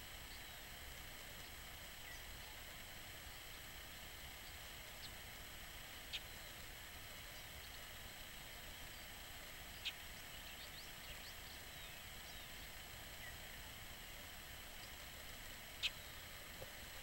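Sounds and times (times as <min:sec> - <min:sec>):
steady hiss: 0:00.0 - 0:17.0
faint bird calls: 0:06.0 - 0:06.6, 0:07.3 - 0:16.9.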